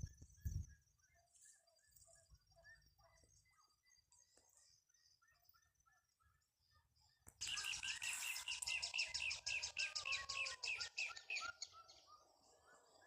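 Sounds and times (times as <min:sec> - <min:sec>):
birds chirping softly: 0:00.0 - 0:13.0.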